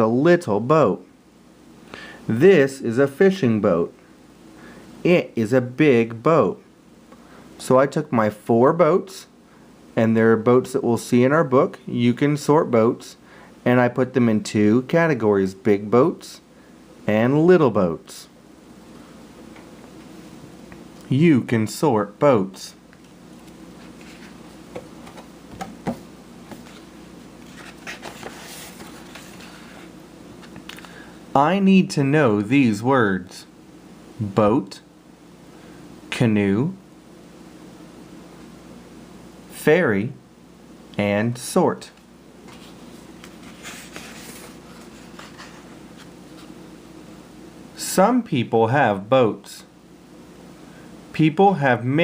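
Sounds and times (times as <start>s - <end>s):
steady low hum: 0.0s - 52.0s
paper pages rustling: 23.4s - 30.6s, 42.4s - 46.6s.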